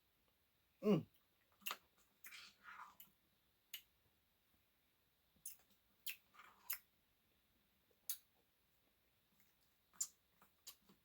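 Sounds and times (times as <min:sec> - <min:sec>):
eating clicks and smacks: 0:01.6 - 0:03.1, 0:05.4 - 0:06.9, 0:08.0 - 0:08.3, 0:09.4 - 0:11.0.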